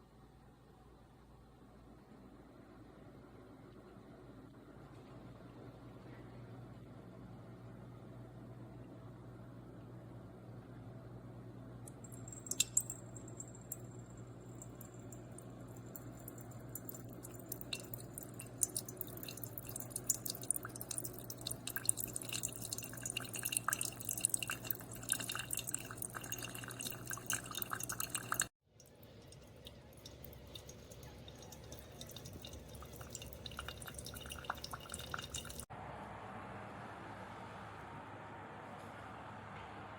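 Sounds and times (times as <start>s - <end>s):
coffee machine humming: 11.9s - 28.5s, 29.3s - 35.6s
coffee dripping into a cup: 11.9s - 35.7s.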